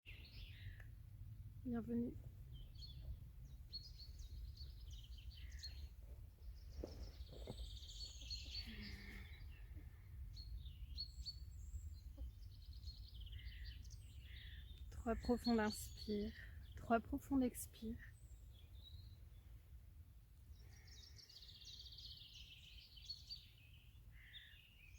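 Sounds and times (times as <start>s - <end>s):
low background rumble: 0.1s - 17.0s
songbirds chirping and trilling: 0.1s - 24.9s.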